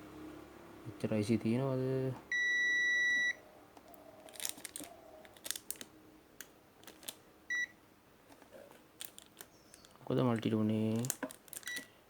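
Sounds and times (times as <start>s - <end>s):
multimeter beep: 2.3s - 3.4s, 7.5s - 7.8s.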